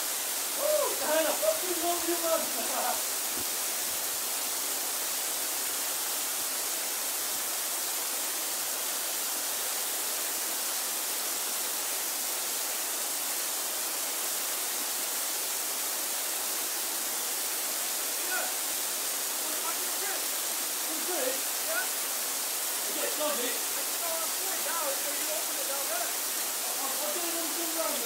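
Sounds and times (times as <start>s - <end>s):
waterfall rushing into pool: 0.0s - 28.0s.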